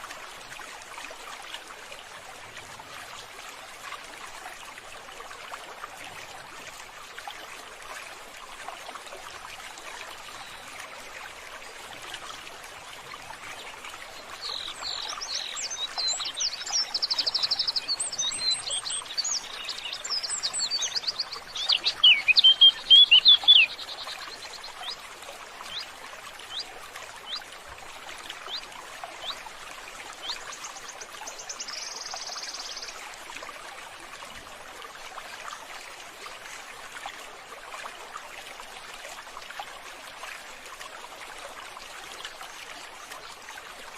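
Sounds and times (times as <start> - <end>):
trickle of running water: 0.0 - 43.9
small birds chirping and trilling: 14.2 - 25.0, 30.2 - 33.0.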